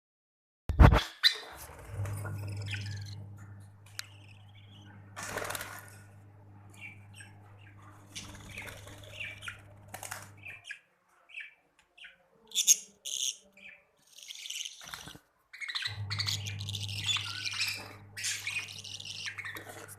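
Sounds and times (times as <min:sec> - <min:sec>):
low steady hum: 0:01.6 - 0:10.6, 0:15.9 - 0:19.9
budgerigars chirping: 0:02.3 - 0:03.2, 0:06.6 - 0:10.8, 0:11.4 - 0:19.9.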